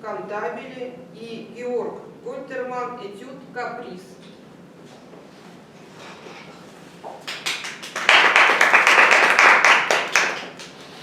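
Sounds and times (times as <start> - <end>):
audience applauding: 7.2 - 11.0.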